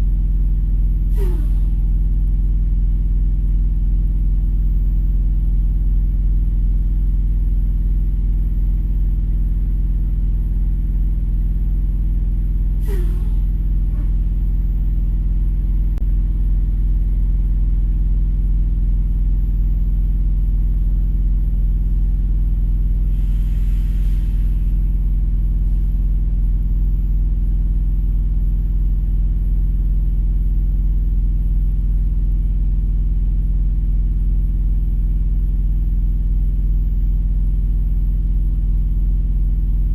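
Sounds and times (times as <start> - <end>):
vehicle engine idling: 0.0 - 29.5
short hiss: 1.1 - 1.8, 12.8 - 13.4.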